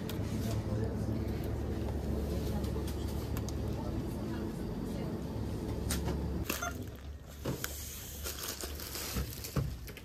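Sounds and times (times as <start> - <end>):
low steady hum: 0.0 - 7.7
crinkling and handling noises: 6.4 - 10.0.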